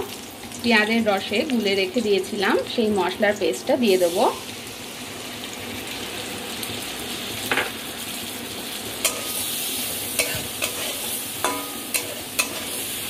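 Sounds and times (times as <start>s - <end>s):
paste sizzling in hot oil: 0.0s - 13.0s
spatula clinking against pan: 9.0s - 9.4s, 10.2s - 12.7s
spatula stirring food: 9.0s - 13.0s.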